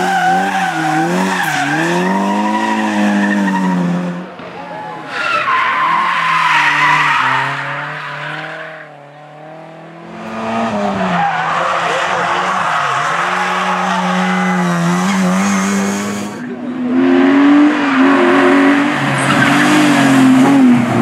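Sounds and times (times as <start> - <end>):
rally car driving away: 0.0 - 21.0
rally car engine revving hard: 6.7 - 21.0.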